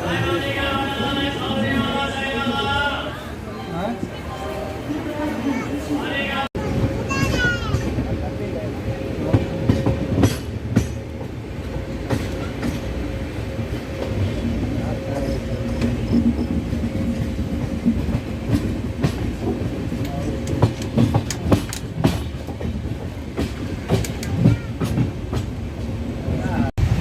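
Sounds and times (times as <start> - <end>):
train rumbling: 0.0 - 27.0
wheels clicking on track: 14.0 - 25.6.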